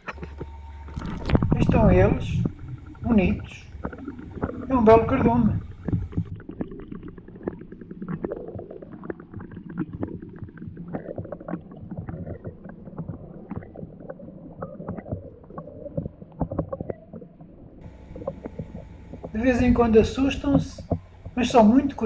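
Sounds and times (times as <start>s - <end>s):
water sloshing and gurgling: 0.0s - 22.0s.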